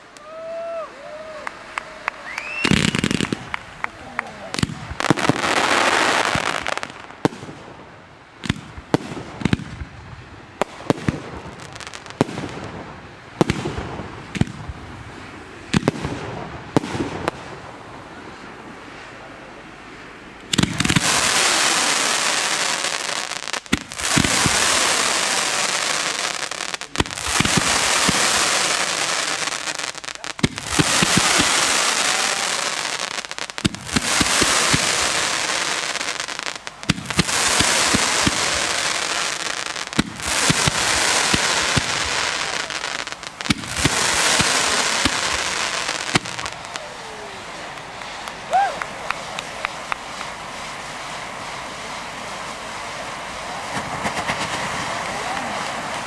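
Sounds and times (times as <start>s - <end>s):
firework bangs and crackles: 0.0s - 56.0s
rushing hiss of fireworks: 0.0s - 56.0s
firework pops: 4.6s - 5.4s, 13.4s - 14.8s, 20.4s - 21.2s, 23.6s - 24.6s, 36.7s - 38.6s, 43.5s - 46.9s, 47.7s - 50.4s, 53.7s - 56.0s.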